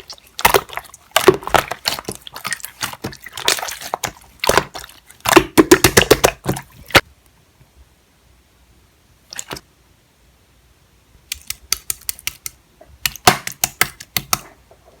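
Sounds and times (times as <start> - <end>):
slime squishing with sticky pops: 0.0 - 7.1, 11.3 - 14.5.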